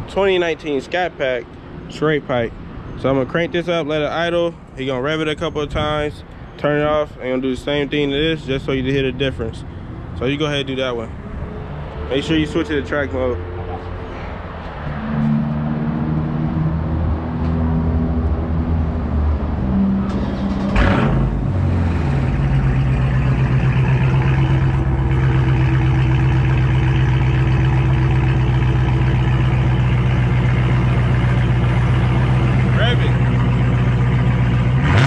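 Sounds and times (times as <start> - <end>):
car engine starting and idling: 14.9 - 35.0
another engine idling: 20.0 - 35.0.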